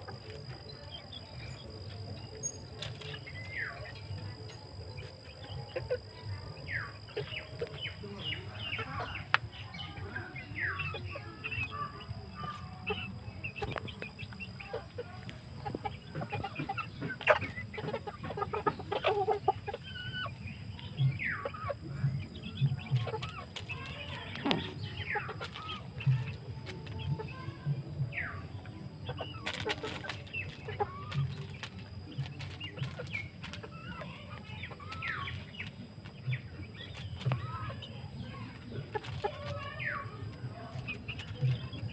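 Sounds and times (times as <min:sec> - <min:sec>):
chickens clucking: 0:00.0 - 0:41.9
steady low hum: 0:00.0 - 0:41.9.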